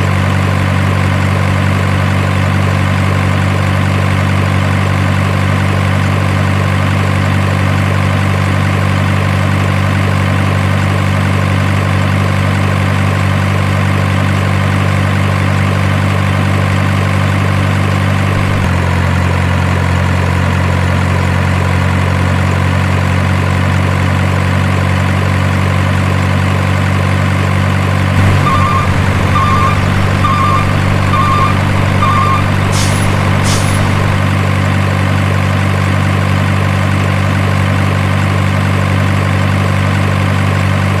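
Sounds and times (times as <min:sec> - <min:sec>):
truck engine idling: 0:16.5 - 0:18.9, 0:28.1 - 0:37.0
short beeps: 0:28.2 - 0:34.3.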